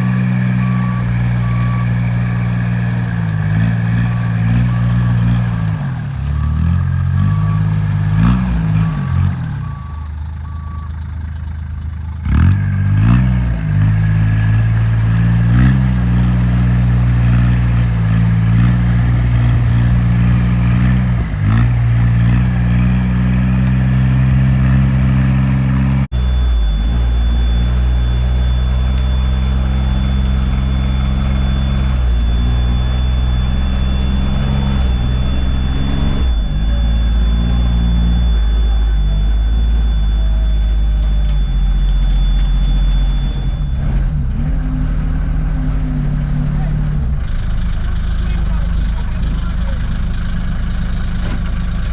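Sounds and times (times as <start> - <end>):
short beeps: 0.0 - 51.8
off-road vehicle engine revving: 0.0 - 51.9
thin high whine: 12.5 - 49.7.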